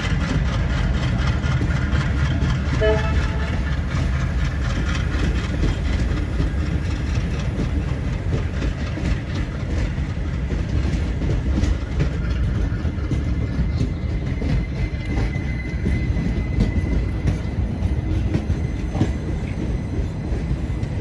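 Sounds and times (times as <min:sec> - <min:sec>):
train coaches rumbling past: 0:00.0 - 0:21.0
wheels clicking over rail joints: 0:00.0 - 0:21.0.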